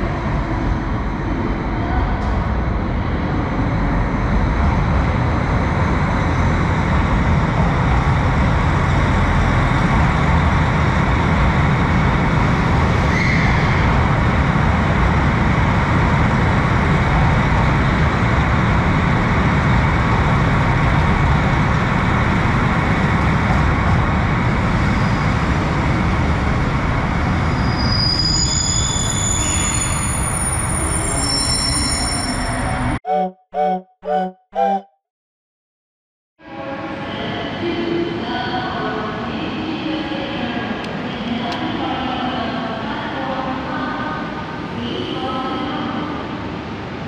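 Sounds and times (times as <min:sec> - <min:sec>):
train rumbling: 0:00.0 - 0:33.0.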